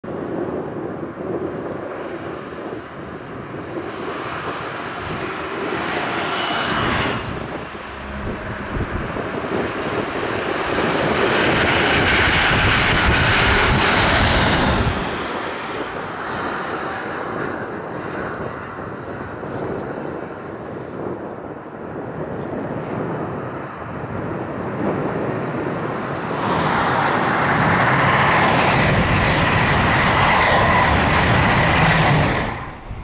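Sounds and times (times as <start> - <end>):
wheels rushing on rails: 1.6 - 18.6, 24.3 - 33.0
electric trains passing: 4.2 - 17.8, 25.1 - 33.0.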